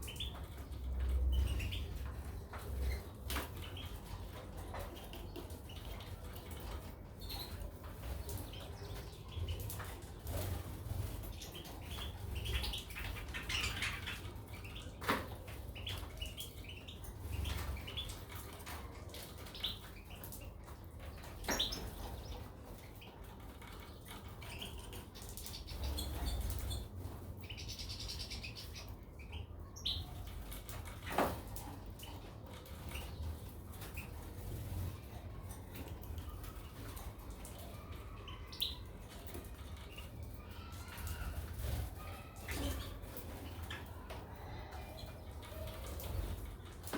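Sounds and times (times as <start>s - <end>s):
birds chirping: 0.0s - 46.9s
birds fluttering: 0.0s - 46.9s.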